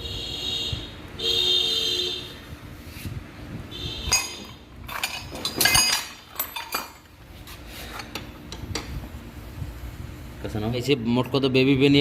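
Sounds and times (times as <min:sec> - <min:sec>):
metal tools clinking: 0:04.1 - 0:07.1.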